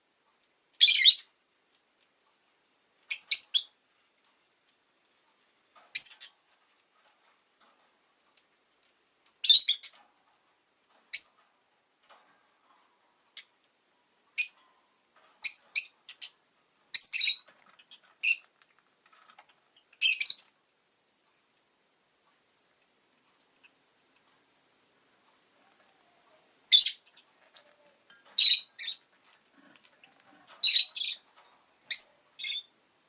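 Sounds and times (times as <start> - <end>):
lovebird high-pitched chirps: 0.8 - 1.3, 3.1 - 3.8, 5.9 - 6.4, 9.4 - 10.0, 11.1 - 11.4, 14.3 - 14.6, 15.4 - 18.5, 19.8 - 20.5, 26.7 - 29.1, 30.0 - 31.3, 31.9 - 32.8.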